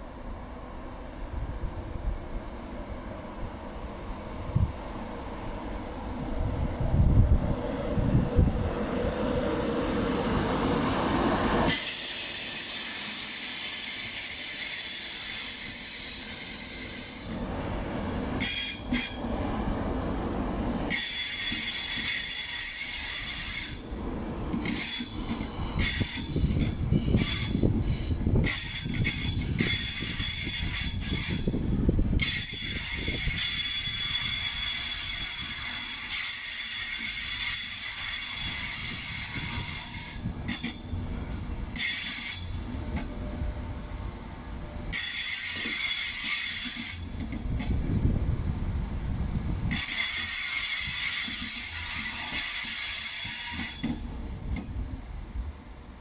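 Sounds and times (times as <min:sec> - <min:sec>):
train rumbling on rails: 0:00.0 - 0:56.0
high metallic squeal: 0:24.6 - 0:31.5.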